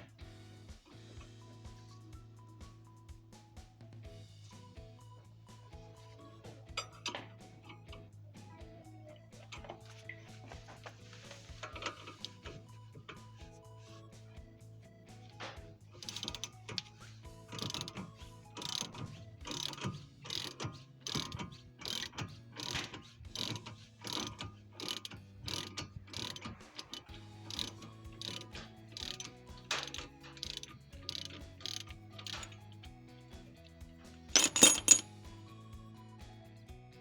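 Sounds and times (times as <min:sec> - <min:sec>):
ratchet wrench clicking: 0:11.7 - 0:13.4, 0:16.0 - 0:32.7, 0:34.3 - 0:35.1.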